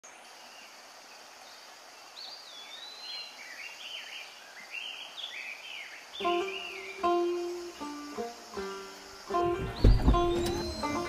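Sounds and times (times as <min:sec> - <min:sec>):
steady outdoor hiss: 0:00.0 - 0:11.0
songbird warbling: 0:04.9 - 0:11.0.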